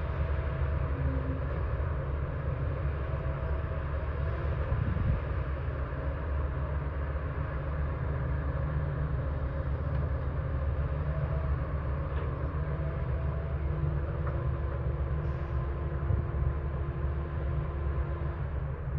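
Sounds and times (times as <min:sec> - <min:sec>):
diesel machinery engine rumble: 0:00.0 - 0:18.9.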